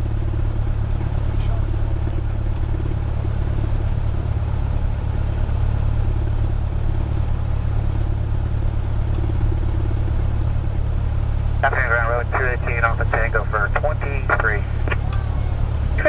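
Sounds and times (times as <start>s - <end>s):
light aircraft engine drone: 0.0s - 16.0s.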